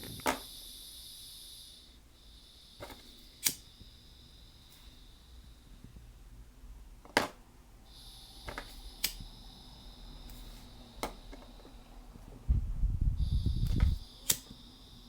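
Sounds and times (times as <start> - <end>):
gas hissing: 0.0 - 6.3, 7.2 - 15.0
lighter clicking: 2.8 - 3.8, 8.4 - 9.5, 13.6 - 14.6.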